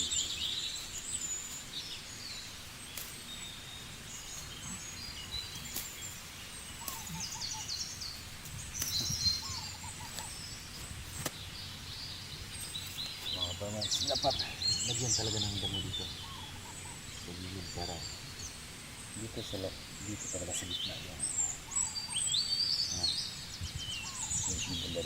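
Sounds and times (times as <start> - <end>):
small birds chirping and twittering: 0.0 - 25.0
faint sharp clicks: 2.9 - 3.3, 5.6 - 6.2, 6.8 - 7.2, 8.8 - 9.2.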